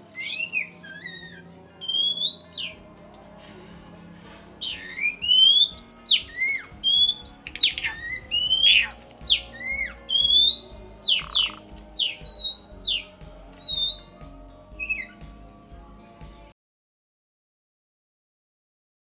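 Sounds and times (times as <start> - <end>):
songbird whistling sliding notes: 0.0 - 2.8, 4.6 - 14.2.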